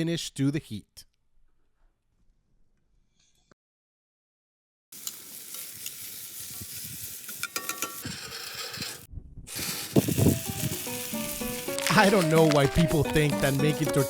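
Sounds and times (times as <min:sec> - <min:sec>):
food sizzling: 0:04.9 - 0:14.0.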